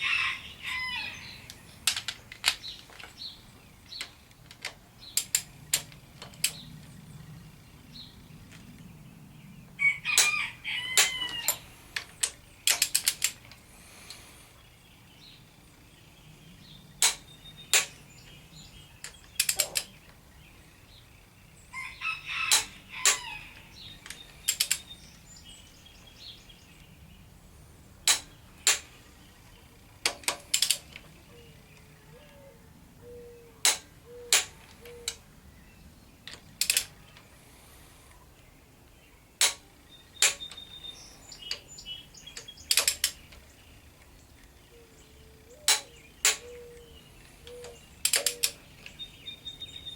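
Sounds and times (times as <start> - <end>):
torque wrench clicking: 24.1 - 24.9.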